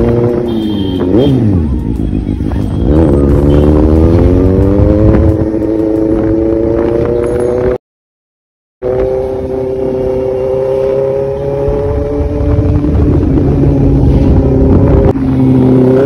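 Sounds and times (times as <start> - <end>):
wind and road noise: 0.0 - 7.8, 8.8 - 16.0.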